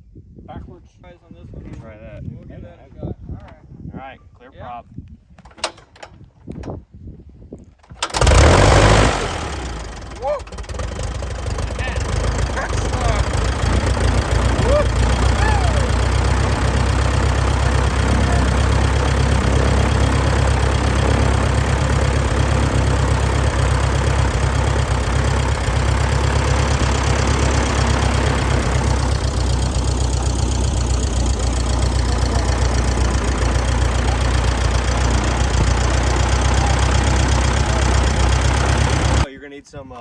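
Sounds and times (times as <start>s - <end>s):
propeller aircraft engine running: 7.9s - 39.3s.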